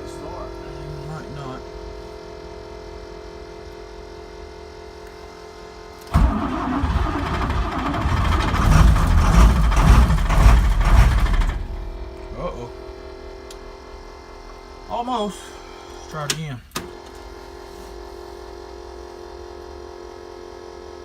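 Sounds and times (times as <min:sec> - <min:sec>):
steady hum: 0:00.0 - 0:21.0
bus engine cranking and starting: 0:06.0 - 0:14.8.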